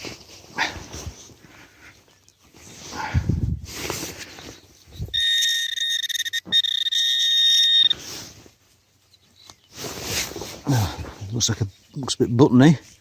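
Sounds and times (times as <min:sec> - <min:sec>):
pinpointer steady high tone: 0:05.0 - 0:08.0.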